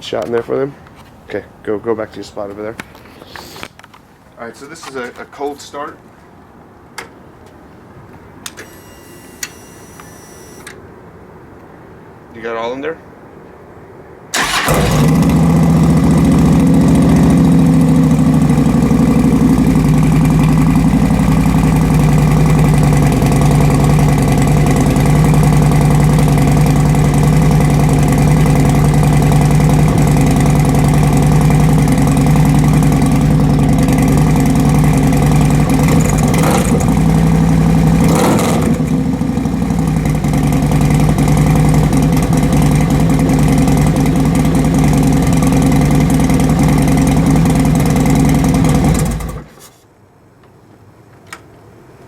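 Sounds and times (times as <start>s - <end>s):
motorcycle starting and idling: 14.3s - 49.7s.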